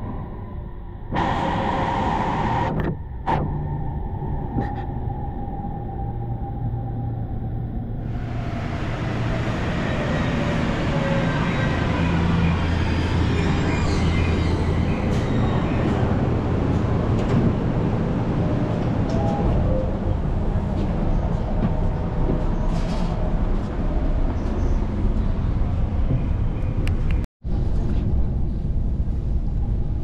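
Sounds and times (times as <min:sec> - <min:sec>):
electric train humming: 0:01.1 - 0:24.3.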